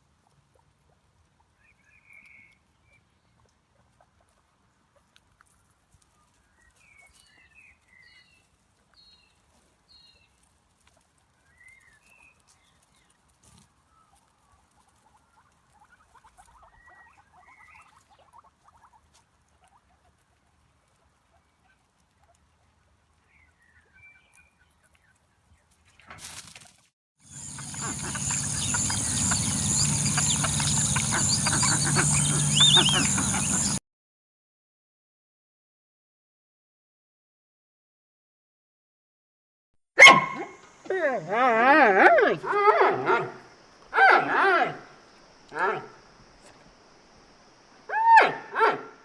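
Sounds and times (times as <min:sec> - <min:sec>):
light pattering: 0:27.3 - 0:33.8
small animals squeaking: 0:27.3 - 0:33.8.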